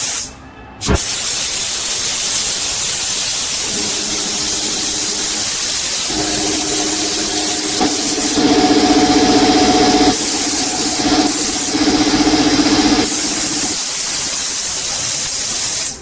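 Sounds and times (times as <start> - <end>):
compressed air spray hissing: 0.0 - 16.0
motor humming: 3.6 - 13.8.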